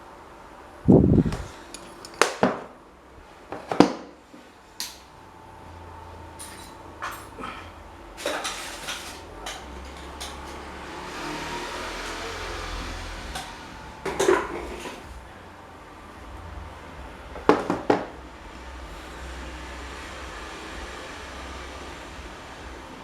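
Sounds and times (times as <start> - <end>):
low steady hum: 4.2 - 23.0.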